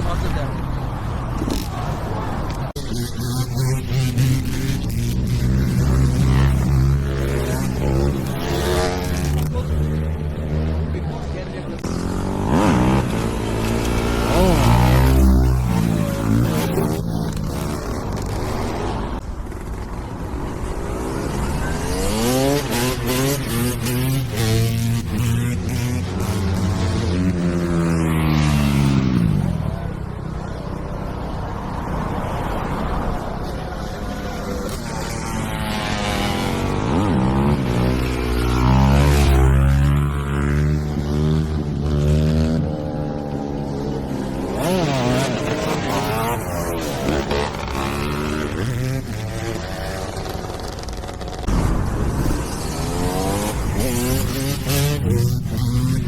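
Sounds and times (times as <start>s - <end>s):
road noise: 0.0s - 56.0s
motorcycle engine passing by: 1.5s - 19.9s, 32.4s - 56.0s.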